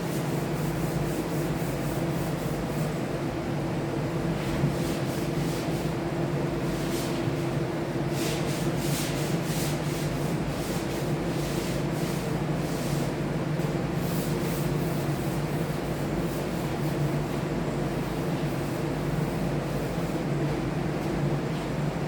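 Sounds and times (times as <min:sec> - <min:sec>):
steady machine hum: 0:00.0 - 0:08.1.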